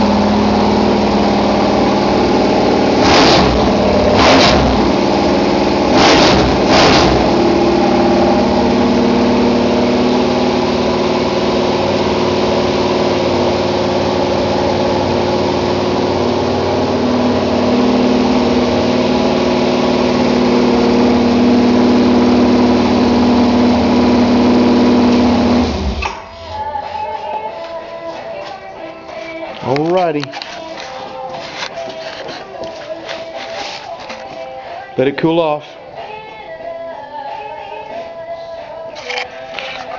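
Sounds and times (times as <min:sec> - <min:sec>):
engine running fast: 0:00.0 - 0:26.2.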